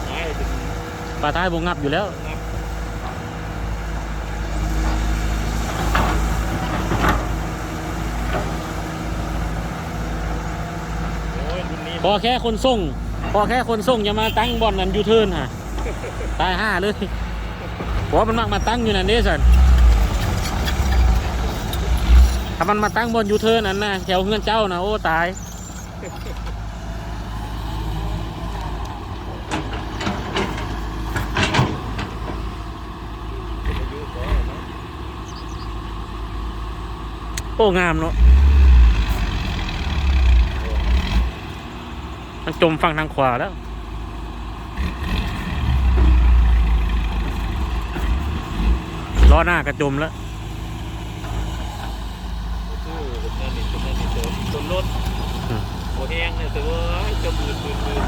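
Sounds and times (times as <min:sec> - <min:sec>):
diesel truck engine running: 0:00.0 - 0:58.0
sharp metal knocks and clanks: 0:29.5 - 0:32.4.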